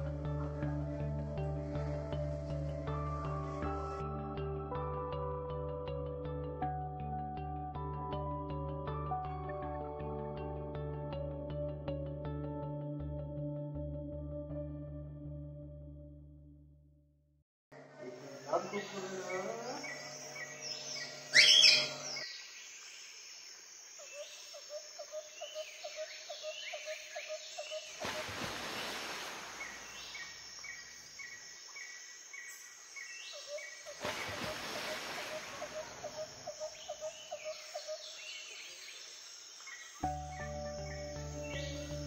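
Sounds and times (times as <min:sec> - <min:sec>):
birds chirping: 0:18.2 - 0:23.2, 0:29.5 - 0:42.0
loud sharp bird call: 0:20.8 - 0:22.2.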